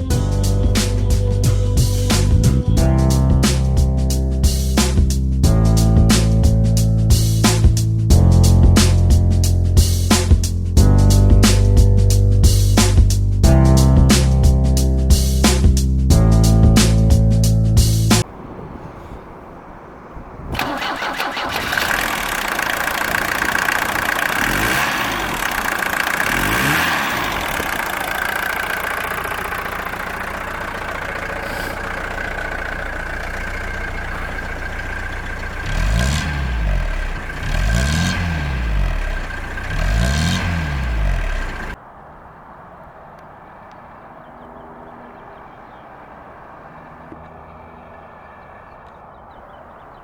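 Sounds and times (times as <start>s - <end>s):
diesel engine revving: 0.0s - 50.0s
diesel engine starting and idling: 0.0s - 50.0s
engine whine: 0.0s - 50.0s.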